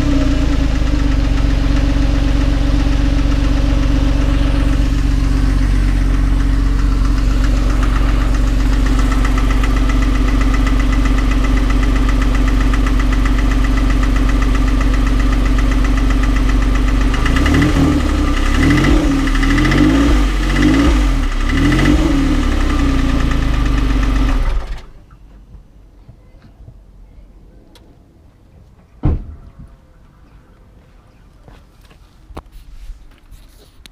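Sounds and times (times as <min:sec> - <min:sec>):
car engine idling with knocking: 0:00.0 - 0:25.2.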